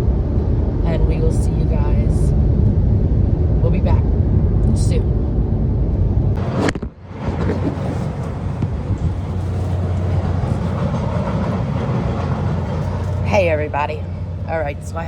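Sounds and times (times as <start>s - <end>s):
low hum with noise: 0.0s - 11.2s
car road rumble: 0.0s - 15.0s.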